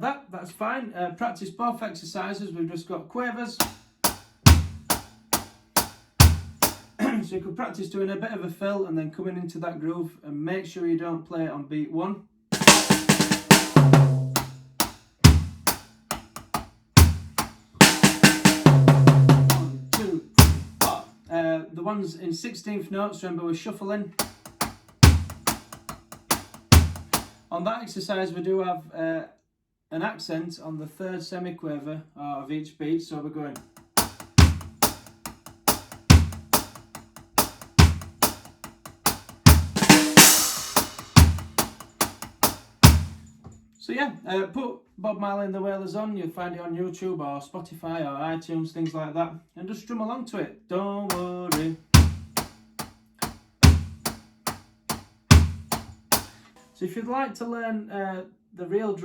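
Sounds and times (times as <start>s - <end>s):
acoustic drum kit playing reggae: 3.6s - 7.1s, 12.6s - 21.1s, 24.2s - 27.5s, 33.6s - 43.5s, 51.1s - 56.4s
cymbal wash: 17.0s - 21.0s, 39.1s - 43.4s.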